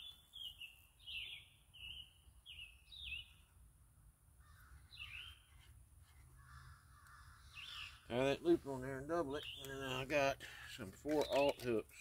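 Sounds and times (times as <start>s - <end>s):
short high bird calls: 4.4s - 8.2s
harsh low bird call: 6.4s - 8.3s.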